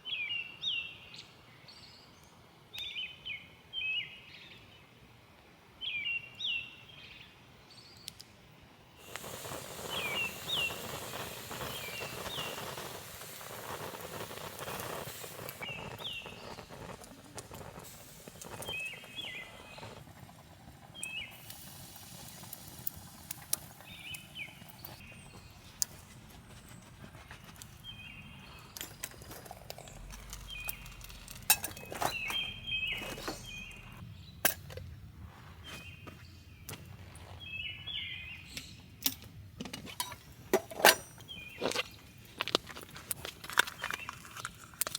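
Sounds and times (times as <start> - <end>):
rustling hiss: 9.0 - 34.0
small birds chirping: 9.0 - 34.5, 35.4 - 39.1, 41.1 - 42.4.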